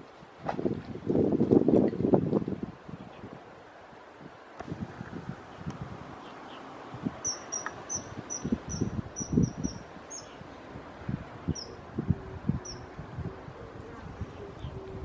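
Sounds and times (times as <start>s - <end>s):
small bird chirping: 6.2s - 10.4s.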